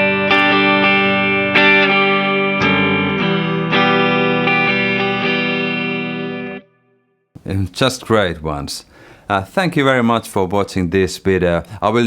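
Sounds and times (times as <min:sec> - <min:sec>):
electric guitar strumming chords: 0:00.0 - 0:06.9.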